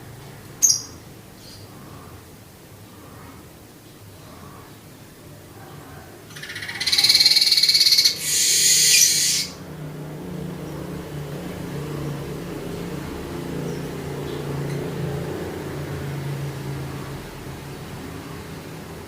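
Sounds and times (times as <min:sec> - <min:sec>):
bird singing buzzy song: 0:00.5 - 0:01.7, 0:06.3 - 0:09.7.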